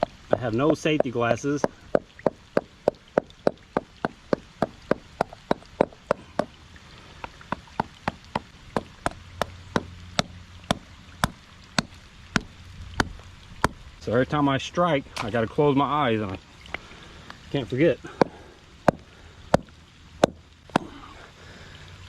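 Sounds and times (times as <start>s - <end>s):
rock hammer striking rock: 0.0s - 6.5s, 18.2s - 20.9s.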